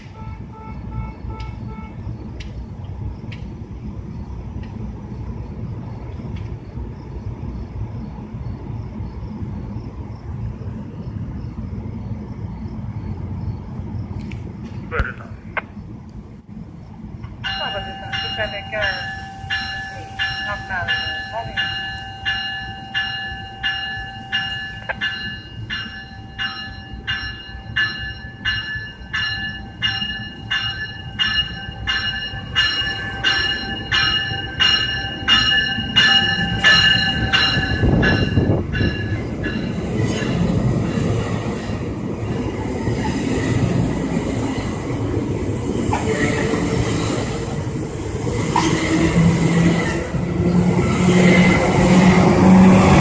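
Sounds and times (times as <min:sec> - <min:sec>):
train rumble and wheel noise: 0:00.0 - 0:53.0
railway crossing bell ringing: 0:17.4 - 0:40.7.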